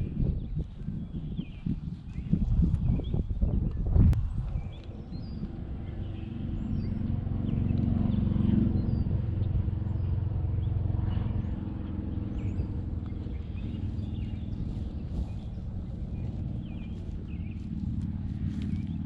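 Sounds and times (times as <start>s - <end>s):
birds chirping: 0.0s - 19.0s
vehicle engine running: 3.8s - 19.0s.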